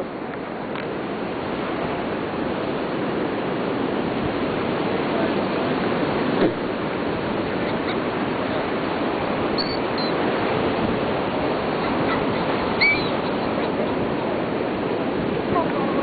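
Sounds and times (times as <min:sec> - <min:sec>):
surf: 0:00.0 - 0:16.0
wind on a beach: 0:00.0 - 0:16.0
seagull calls: 0:07.6 - 0:08.1, 0:09.6 - 0:10.2, 0:11.7 - 0:14.0.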